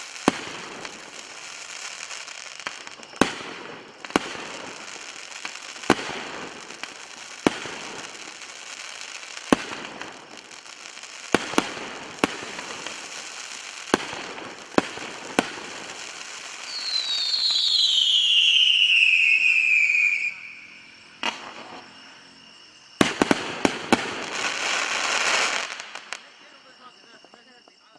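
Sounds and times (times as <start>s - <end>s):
fireworks bangs: 0.0s - 22.1s, 23.0s - 27.4s
fireworks crackle: 0.0s - 27.9s
falling whistle: 16.5s - 22.8s.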